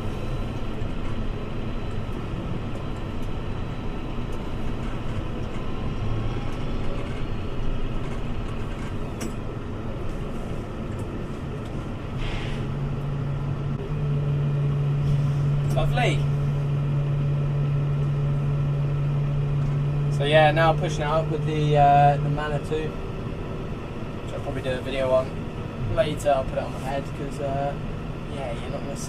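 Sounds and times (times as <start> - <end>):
tractor engine running: 0.0 - 29.0
short hiss: 12.2 - 12.7.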